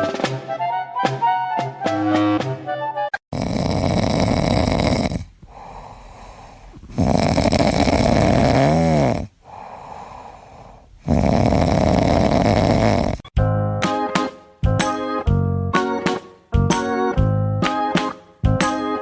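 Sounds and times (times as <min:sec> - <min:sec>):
loud snoring: 0:03.3 - 0:13.3
quiet breathing: 0:04.9 - 0:11.5.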